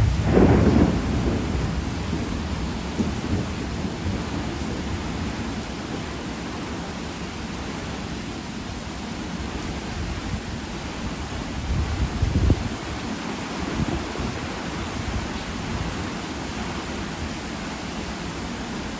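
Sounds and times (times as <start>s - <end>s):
thunder rumbling: 0.0s - 6.8s
steady rain: 0.0s - 18.9s.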